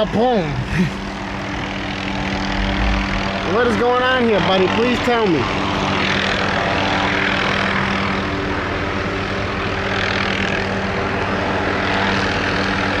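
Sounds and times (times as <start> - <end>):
helicopter hovering: 0.0 - 13.0.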